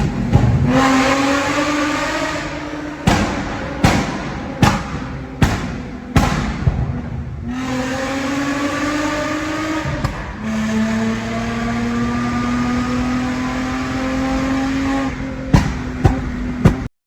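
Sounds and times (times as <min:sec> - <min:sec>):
loud exhaust pops: 0:00.0 - 0:07.4, 0:09.8 - 0:10.7, 0:15.0 - 0:16.9
car engine revving: 0:00.0 - 0:16.9.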